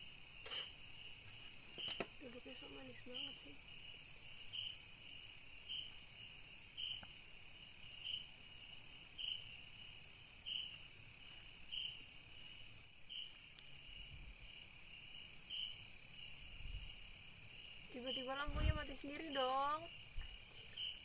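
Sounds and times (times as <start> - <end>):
high-pitched insect drone: 0.0 - 6.0
insect chirp: 0.0 - 21.0.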